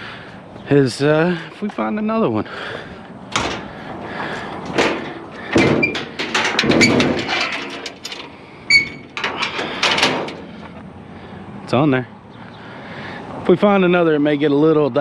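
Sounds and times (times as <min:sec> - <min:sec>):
scrap metal clanking and scraping: 0:03.3 - 0:10.8.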